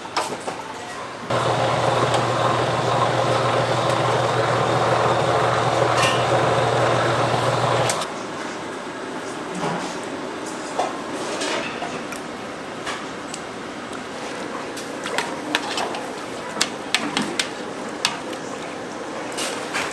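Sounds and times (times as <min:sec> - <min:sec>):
kitchen machine motor humming: 0:01.3 - 0:08.1.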